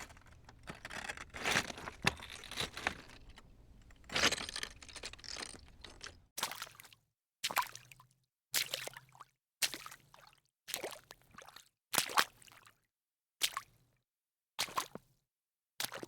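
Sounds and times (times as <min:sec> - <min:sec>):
crunching and crackling: 0:00.0 - 0:06.3.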